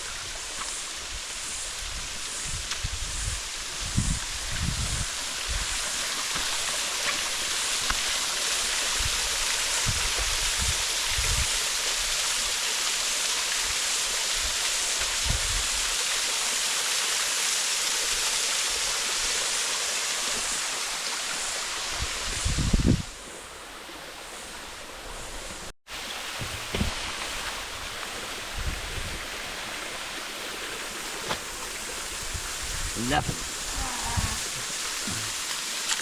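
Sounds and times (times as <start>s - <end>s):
waterfall rushing: 25.9s - 35.9s.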